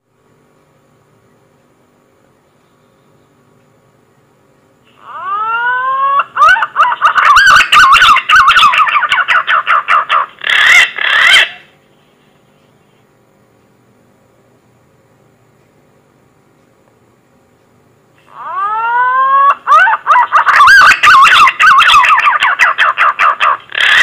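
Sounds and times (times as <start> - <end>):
pigeon lure call whistles: 5.1 - 9.5, 18.4 - 24.0.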